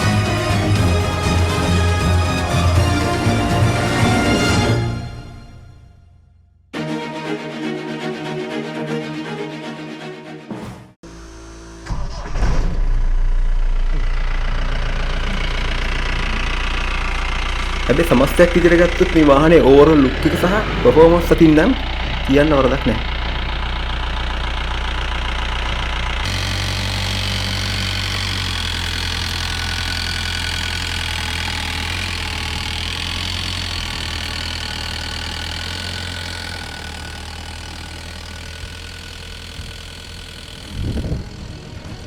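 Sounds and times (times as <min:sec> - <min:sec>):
pickup engine idling: 0:11.1 - 0:42.0.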